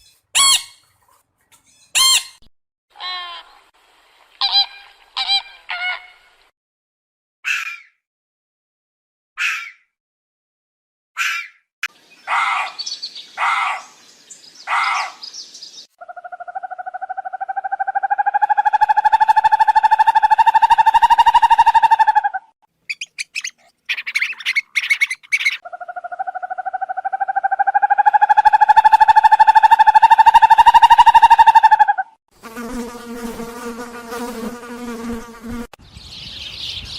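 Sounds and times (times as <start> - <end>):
short bird calls: 22.9 - 25.8
insect buzzing: 32.3 - 35.8.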